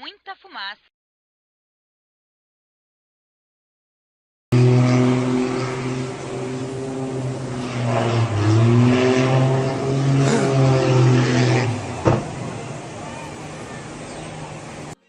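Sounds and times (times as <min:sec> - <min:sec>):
engine droning hum: 0:04.5 - 0:15.0.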